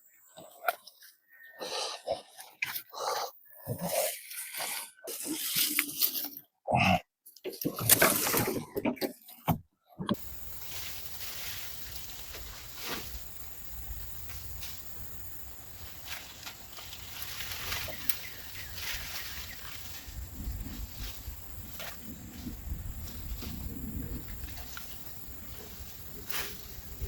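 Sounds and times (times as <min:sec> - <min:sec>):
steady high hiss: 0:10.2 - 0:27.0
wind rumble on microphone: 0:17.6 - 0:27.0.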